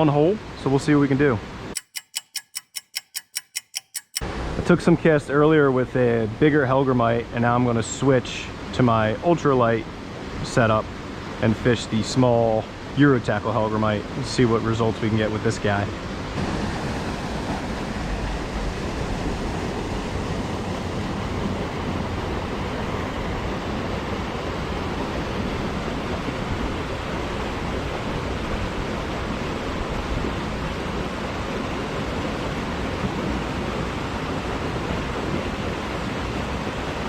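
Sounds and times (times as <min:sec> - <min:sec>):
creek water rushing: 0:07.2 - 0:37.0.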